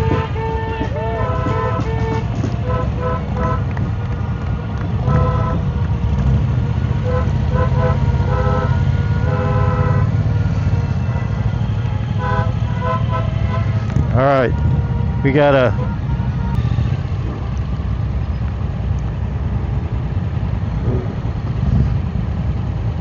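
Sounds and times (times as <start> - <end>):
vehicle horns beeping: 0.0 - 4.0, 4.8 - 17.6
motorcycle engines rumbling: 0.0 - 23.0.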